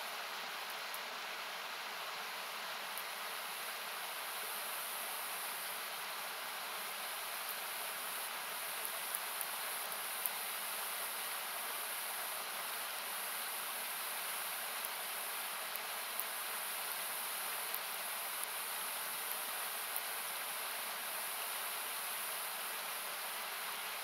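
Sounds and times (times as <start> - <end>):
campfire crackling and popping: 8.2 - 11.2, 14.4 - 20.3.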